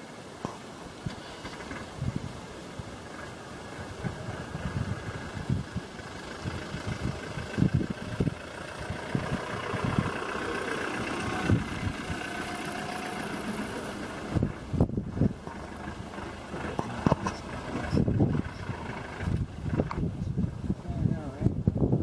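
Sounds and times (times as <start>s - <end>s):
vehicle engine idling: 1.2s - 20.8s
low thumps: 11.1s - 20.6s.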